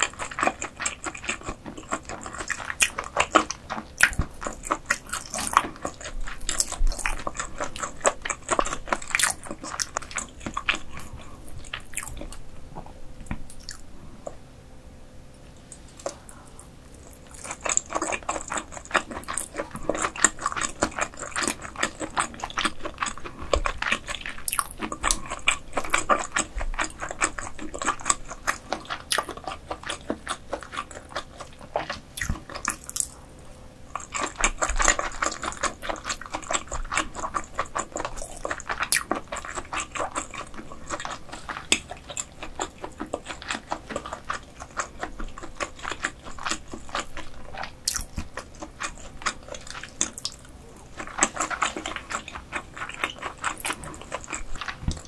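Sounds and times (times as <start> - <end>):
wet chewing mouth clicks: 0.0 - 12.4, 13.2 - 14.4, 15.6 - 33.2, 33.9 - 55.0.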